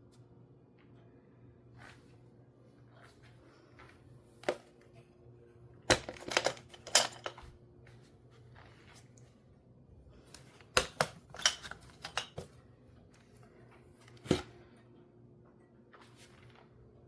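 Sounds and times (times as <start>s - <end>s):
faint steady hum: 0.0s - 17.0s
hard objects clicking and knocking: 5.9s - 7.4s.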